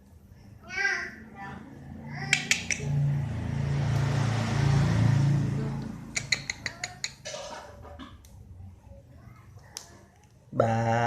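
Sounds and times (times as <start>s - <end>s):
low hum: 1.5s - 6.2s.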